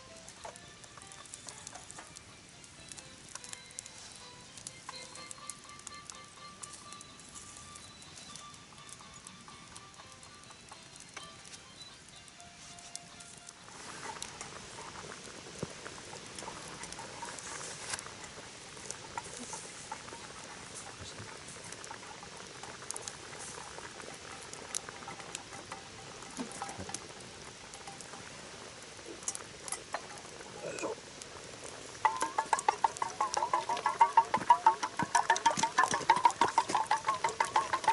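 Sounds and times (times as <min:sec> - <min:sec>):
bonfire crackling and popping: 0:00.0 - 0:37.9
fast rhythmic rattling: 0:32.0 - 0:37.9.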